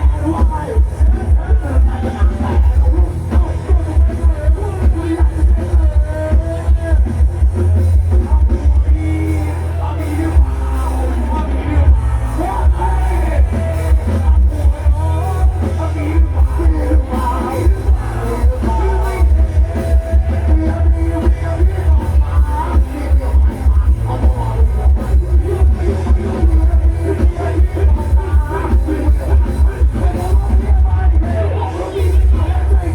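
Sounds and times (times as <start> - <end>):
loud music from speakers: 0.0 - 32.9.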